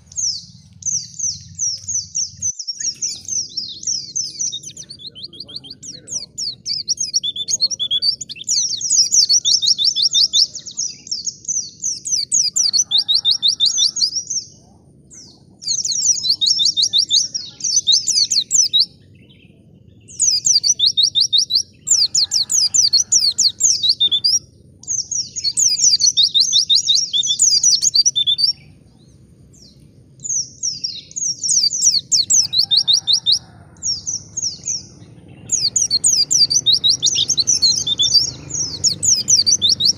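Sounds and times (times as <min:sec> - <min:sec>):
bird singing chattering song: 0:00.0 - 0:39.9.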